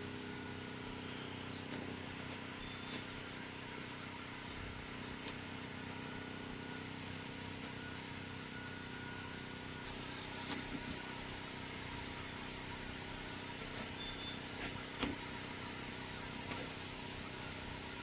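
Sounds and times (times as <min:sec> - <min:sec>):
compressor humming: 0:00.0 - 0:05.9, 0:09.1 - 0:18.0.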